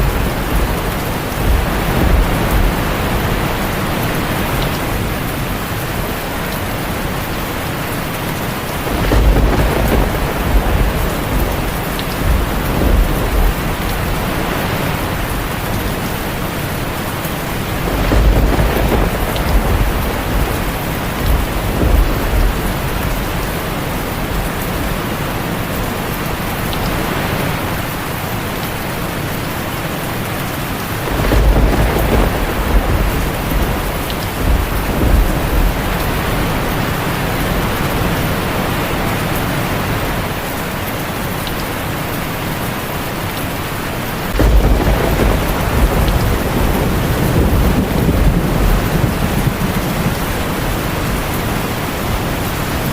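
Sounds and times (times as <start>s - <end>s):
low thunder rolling: 0.0s - 7.0s, 8.6s - 25.1s, 31.0s - 38.4s, 44.3s - 52.9s
heavy rain on a tin roof: 0.0s - 52.9s.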